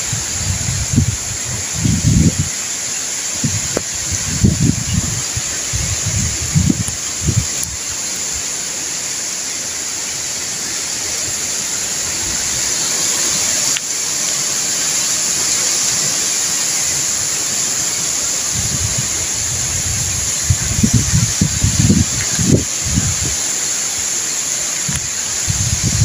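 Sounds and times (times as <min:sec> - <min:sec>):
gusts buffeting microphone: 0:00.0 - 0:08.5, 0:17.9 - 0:23.9, 0:24.8 - 0:26.0
strong wind through trees: 0:00.0 - 0:26.0.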